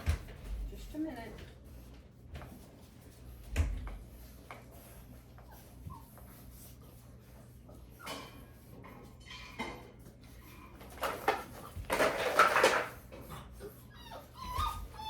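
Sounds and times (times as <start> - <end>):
dishes knocking and clattering: 8.0 - 10.1, 10.8 - 13.5
puppies whimpering: 13.4 - 15.0.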